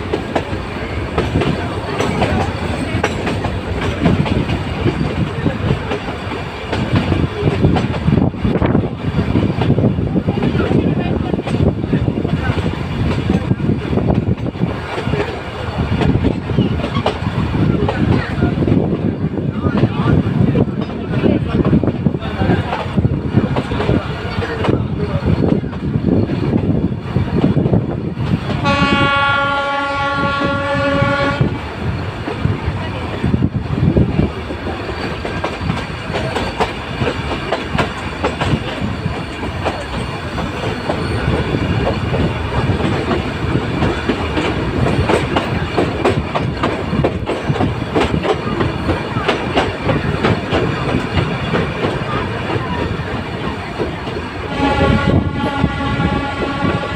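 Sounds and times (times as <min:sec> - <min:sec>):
train wheels clattering on rails: 0:00.0 - 0:56.9
train horn: 0:28.6 - 0:31.6, 0:54.4 - 0:56.9.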